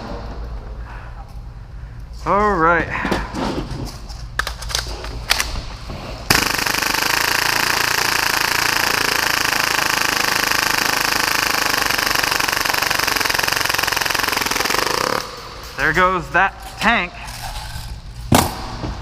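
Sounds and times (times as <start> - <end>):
airsoft pistol full-auto burst: 6.3 - 15.4.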